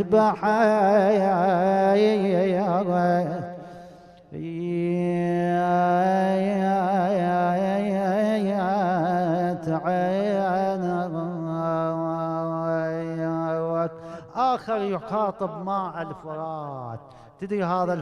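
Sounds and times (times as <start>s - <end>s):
man chanting without words: 4.3s - 18.0s.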